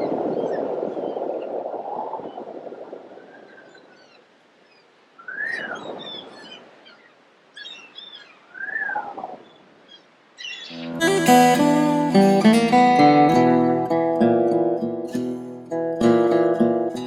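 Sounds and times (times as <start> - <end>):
birds calling: 3.5 - 13.4.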